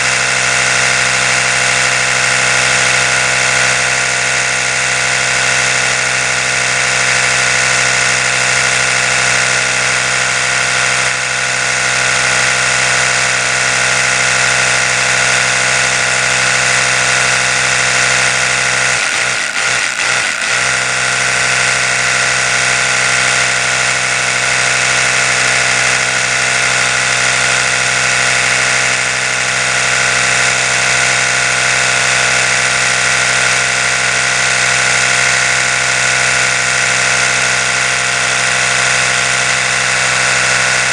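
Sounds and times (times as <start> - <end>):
electric toothbrush buzzing: 0.0 - 40.9.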